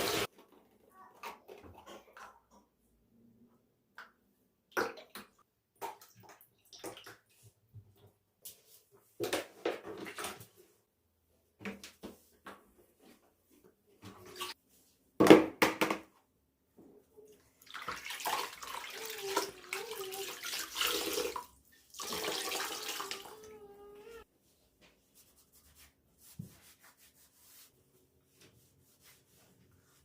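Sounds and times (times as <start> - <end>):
tap water running into basin: 0.0 - 0.3, 17.6 - 23.5.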